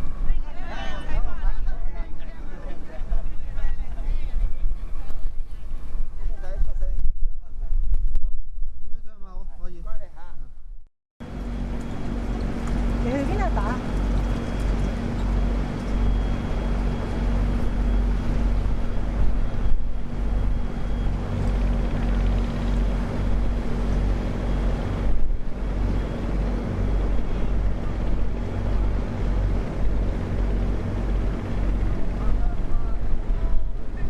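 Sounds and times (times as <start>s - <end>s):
wind buffeting microphone: 3.0s - 9.4s, 11.3s - 34.0s
boat engine humming: 11.2s - 34.0s.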